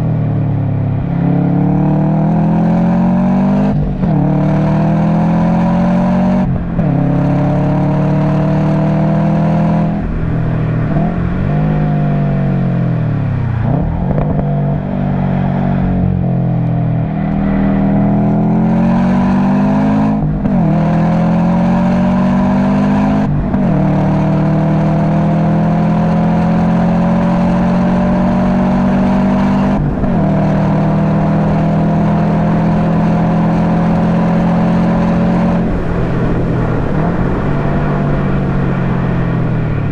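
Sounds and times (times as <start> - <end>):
car engine revving on track: 0.0 - 39.9.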